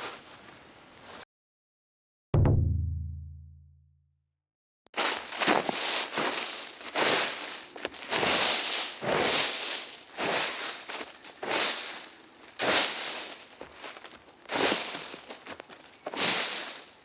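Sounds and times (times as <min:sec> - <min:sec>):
dry leaves crunching: 0:05.0 - 0:17.0.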